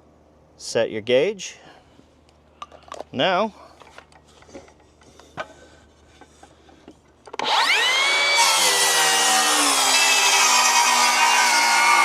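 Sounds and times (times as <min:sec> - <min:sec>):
circular saw cutting wood: 0:07.4 - 0:12.0.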